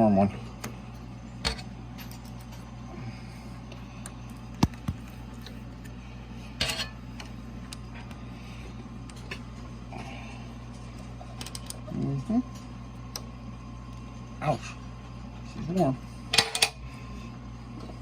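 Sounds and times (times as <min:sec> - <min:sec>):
steady low hum: 0:00.0 - 0:18.0
metal tools clinking: 0:06.6 - 0:07.0.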